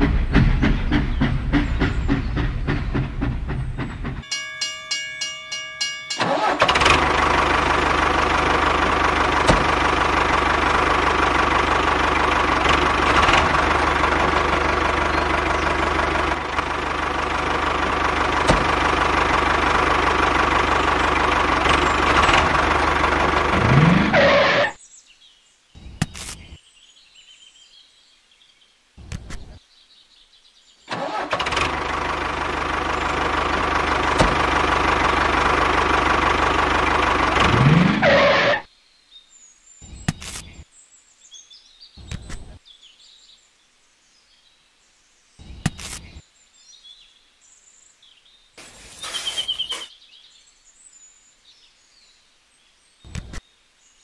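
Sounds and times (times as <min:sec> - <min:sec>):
tractor engine running: 0:00.0 - 0:24.8, 0:30.9 - 0:38.7.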